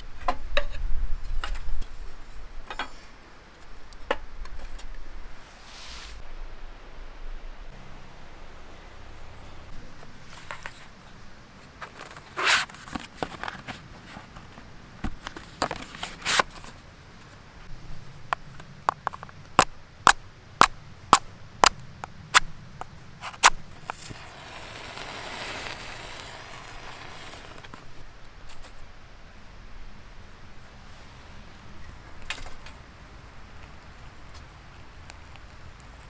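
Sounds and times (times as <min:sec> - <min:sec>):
soft hiss: 0:00.0 - 0:36.0.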